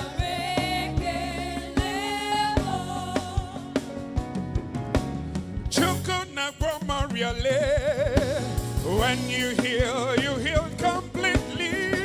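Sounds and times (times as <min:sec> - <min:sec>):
bass: 0:00.0 - 0:12.0
drums: 0:00.0 - 0:12.0
keyboard: 0:00.0 - 0:12.0
person singing: 0:05.8 - 0:12.0.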